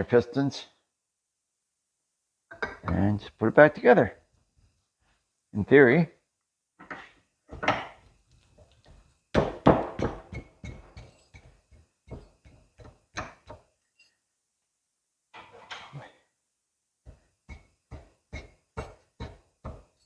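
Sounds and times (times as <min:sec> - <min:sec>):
metal clunks and knocks: 0:06.8 - 0:08.1.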